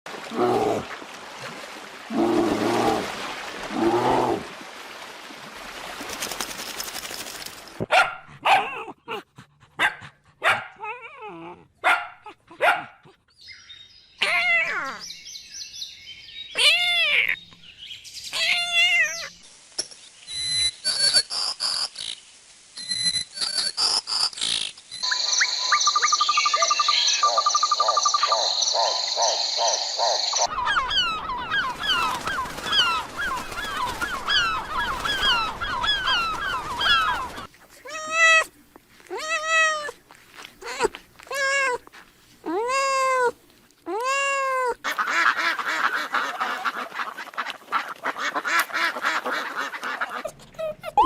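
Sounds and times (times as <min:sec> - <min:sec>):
dogs barking: 0:07.9 - 0:09.0, 0:09.8 - 0:10.8, 0:11.8 - 0:13.2, 0:27.2 - 0:30.5
short high chirping calls: 0:24.9 - 0:29.4
dogs whining: 0:50.4 - 0:51.0.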